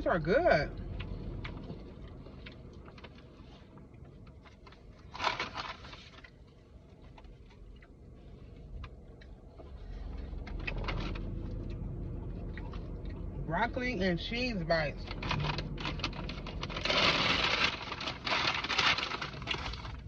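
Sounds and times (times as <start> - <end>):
steady low hum: 0.0 - 20.0
crunchy rustle: 1.5 - 11.5, 15.0 - 20.0.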